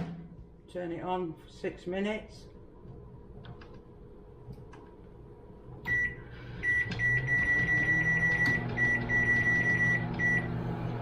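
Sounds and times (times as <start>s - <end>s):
microwave oven humming and whining: 2.6s - 11.0s.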